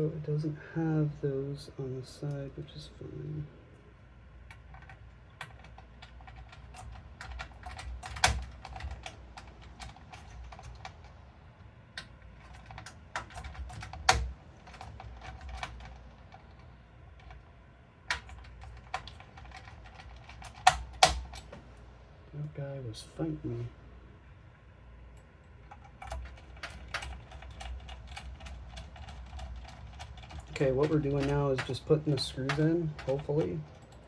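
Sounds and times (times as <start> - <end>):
screwdriver clicking on computer case: 4.5 - 11.0, 18.1 - 21.6, 25.7 - 34.0.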